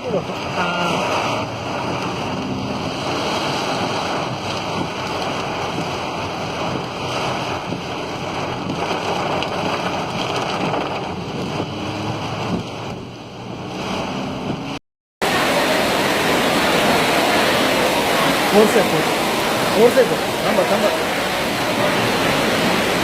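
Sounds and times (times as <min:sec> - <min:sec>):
heavy rain: 0:00.0 - 0:23.0
wind buffeting microphone: 0:00.4 - 0:14.8.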